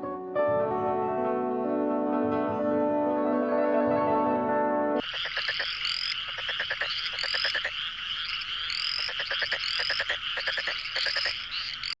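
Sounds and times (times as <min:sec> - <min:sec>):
frogs trilling: 0:05.0 - 0:12.0.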